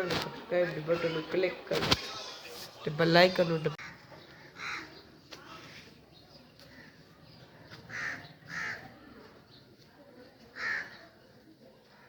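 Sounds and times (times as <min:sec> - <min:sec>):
bird harsh calls: 0:03.8 - 0:05.9.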